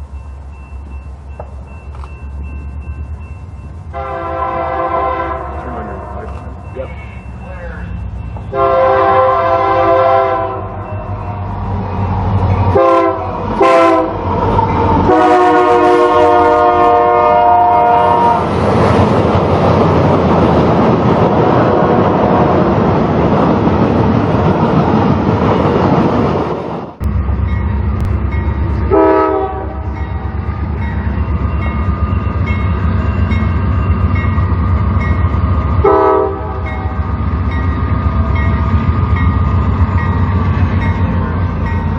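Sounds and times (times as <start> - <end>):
locomotive engine rumbling: 0.0 - 41.9
passing train rushing: 0.0 - 41.9
locomotive air horn: 3.9 - 6.1, 8.5 - 10.8, 12.7 - 14.2, 15.0 - 18.5, 28.9 - 29.9, 35.8 - 36.6.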